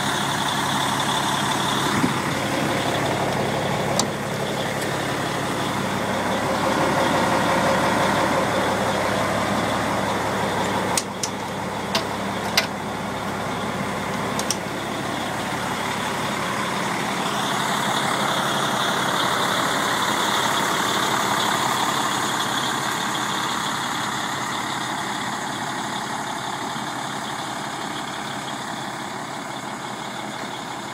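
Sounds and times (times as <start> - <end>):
fire engine idling: 0.0 - 30.9
sharp clicks: 10.6 - 12.8, 14.3 - 14.7.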